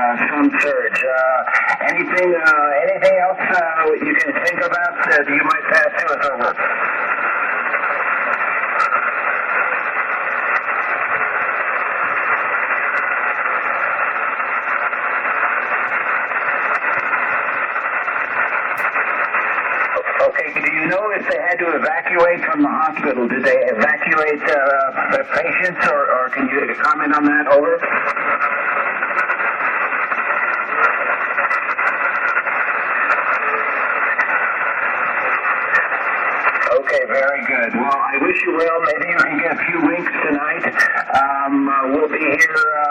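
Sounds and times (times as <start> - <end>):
radio hiss and static: 0.0 - 42.9.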